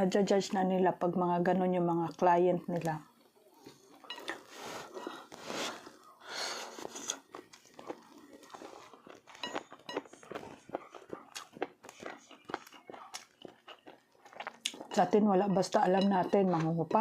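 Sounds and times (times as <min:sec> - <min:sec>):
person chewing: 0:03.5 - 0:15.0
mouth clicks and smacks: 0:09.9 - 0:14.9.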